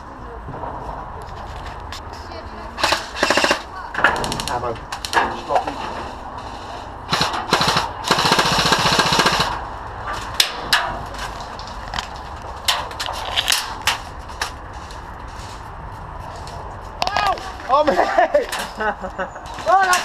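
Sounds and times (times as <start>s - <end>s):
airsoft guns firing: 2.8s - 4.6s, 7.1s - 9.6s.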